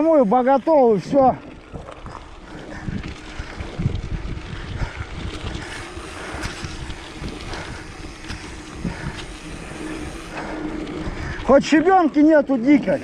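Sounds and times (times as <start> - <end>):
tyres rolling on dirt road: 0.0 - 13.0
wind buffeting microphone: 1.1 - 11.9.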